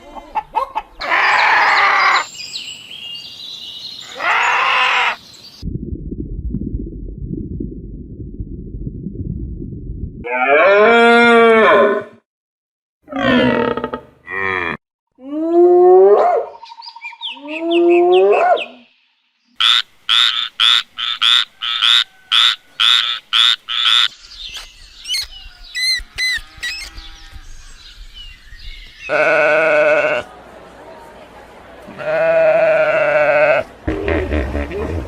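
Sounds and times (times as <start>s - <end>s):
cow mooing: 10.4s - 12.2s, 13.1s - 14.8s.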